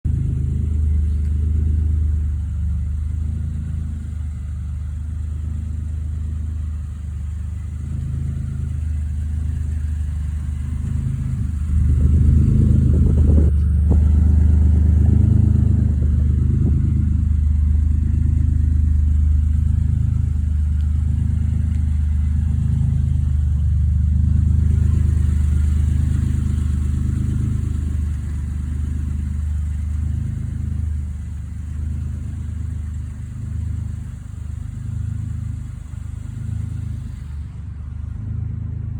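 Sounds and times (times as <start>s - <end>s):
truck engine driving: 0.0s - 38.9s.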